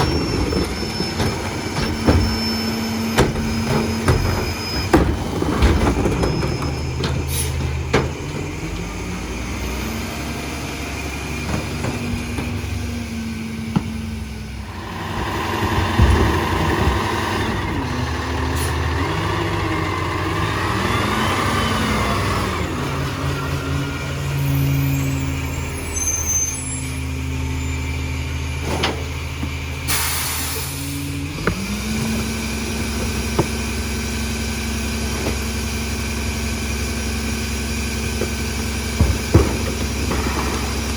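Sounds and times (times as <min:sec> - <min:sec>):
garbage truck diesel engine: 0:00.0 - 0:40.9
short air hiss: 0:29.9 - 0:30.9.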